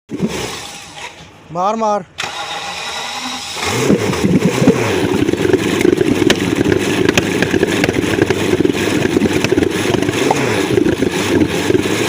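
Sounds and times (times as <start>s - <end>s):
car engine running: 2.4s - 12.0s
sharp engine ticks: 3.6s - 11.9s.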